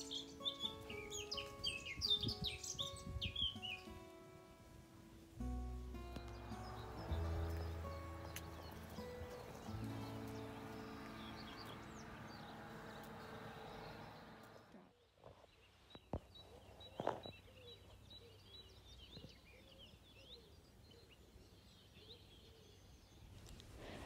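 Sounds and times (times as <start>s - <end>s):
soft background music: 0.0s - 14.4s
small birds chirping: 0.0s - 24.0s.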